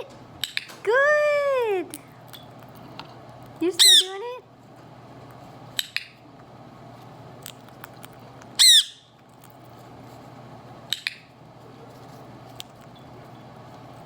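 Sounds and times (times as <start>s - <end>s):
parrot squawking: 3.8s - 4.2s, 8.6s - 9.1s.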